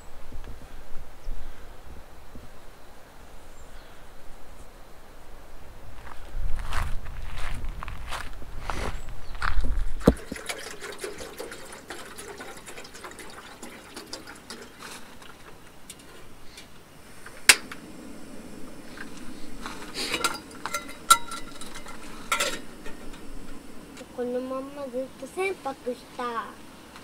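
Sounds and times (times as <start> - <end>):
liquid being poured: 10.0 - 16.3
pots and utensils clinking: 10.1 - 16.7, 19.6 - 23.7.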